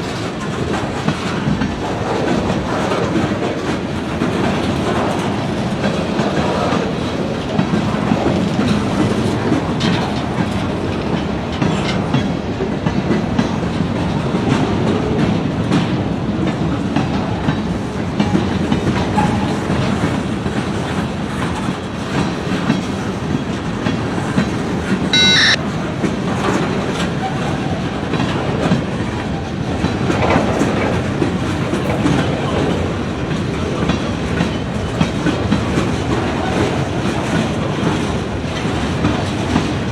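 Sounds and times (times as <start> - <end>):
train wheels clicking over rail joints: 0.0 - 25.0, 26.2 - 39.9
short high-pitched tone: 25.2 - 25.6.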